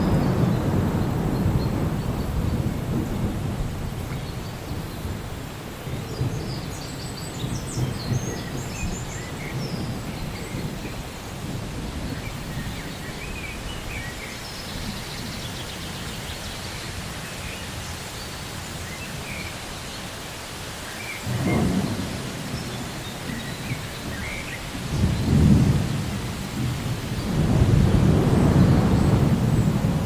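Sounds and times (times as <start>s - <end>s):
thunder rumbling: 0.0s - 12.7s, 21.3s - 30.0s
steady rain falling: 0.0s - 30.0s.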